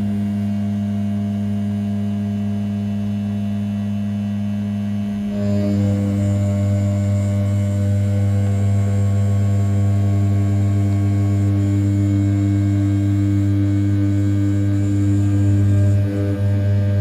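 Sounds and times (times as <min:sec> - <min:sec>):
milling machine humming: 0:04.5 - 0:17.0.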